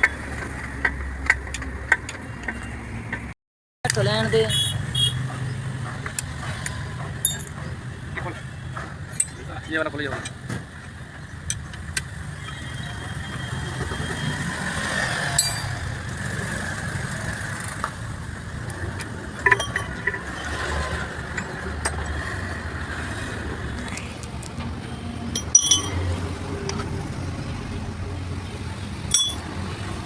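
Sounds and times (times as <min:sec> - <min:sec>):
vehicle engine rumble: 0:03.9 - 0:30.0
sharp metallic clinks: 0:07.2 - 0:07.8, 0:15.4 - 0:15.9, 0:25.3 - 0:26.3, 0:29.1 - 0:29.5.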